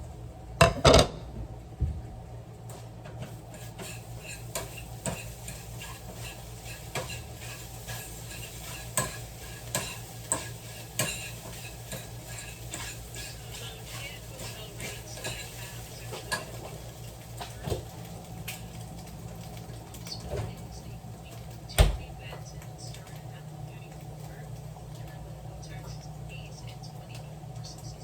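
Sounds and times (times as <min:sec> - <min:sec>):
dishes clattering: 0:00.6 - 0:01.3, 0:04.2 - 0:16.8
eggs sizzling: 0:03.1 - 0:28.0
utensil scraping eggs in pan: 0:03.2 - 0:17.5.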